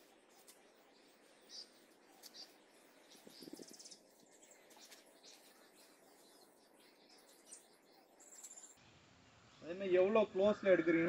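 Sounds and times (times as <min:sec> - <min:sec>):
high bird chirps: 0:00.0 - 0:08.8
faint outdoor ambience: 0:00.0 - 0:11.0.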